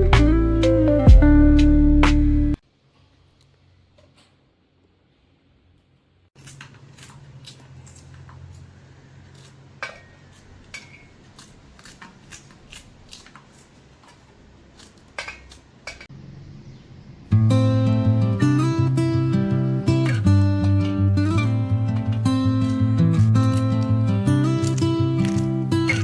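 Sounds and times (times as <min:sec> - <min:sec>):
acoustic guitar music: 0:00.0 - 0:02.6, 0:17.3 - 0:26.0
metal utensils clinking: 0:09.4 - 0:12.1, 0:14.8 - 0:16.1, 0:20.8 - 0:26.0.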